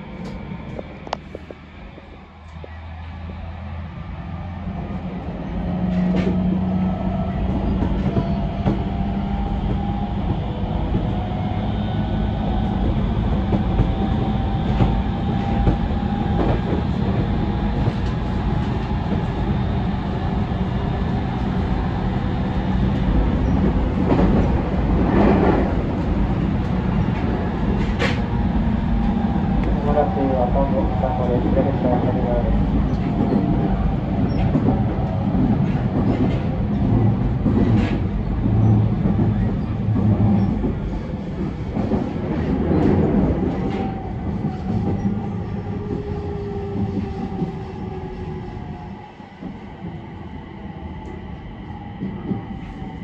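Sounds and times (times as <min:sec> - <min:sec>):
train motor hum: 0:00.0 - 0:50.1
train wheels rumbling on track: 0:00.0 - 0:53.0.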